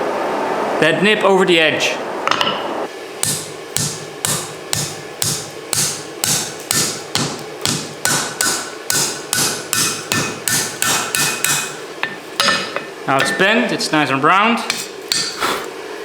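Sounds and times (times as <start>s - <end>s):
hammer striking hot steel: 3.2s - 13.6s, 14.6s - 15.4s.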